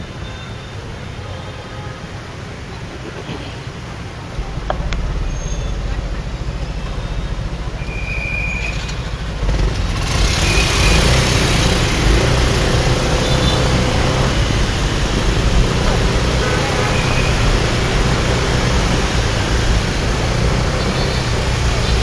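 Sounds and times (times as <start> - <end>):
motorbike engine: 4.3 - 22.0
wind rushing over microphone: 9.4 - 21.8.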